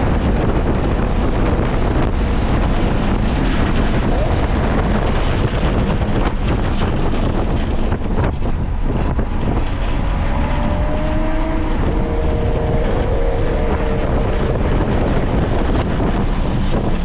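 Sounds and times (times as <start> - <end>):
race car engine and road noise: 0.0 - 17.0
wind buffeting microphone: 0.0 - 17.0.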